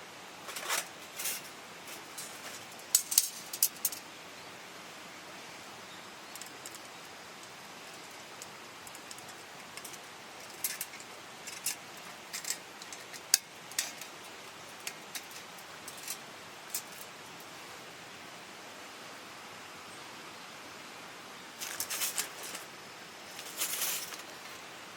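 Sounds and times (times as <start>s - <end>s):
small stream running: 0.0s - 24.9s.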